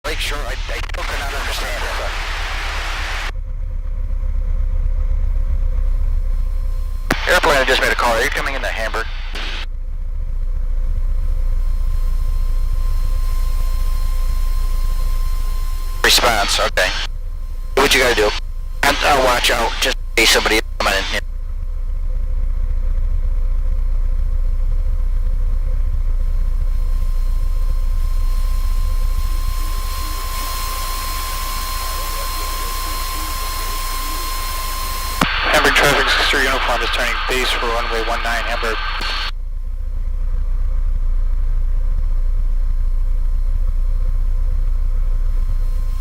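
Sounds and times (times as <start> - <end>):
thin steady whine: 0.0 - 3.3, 6.2 - 46.0
propeller airplane engine drone: 0.1 - 46.0.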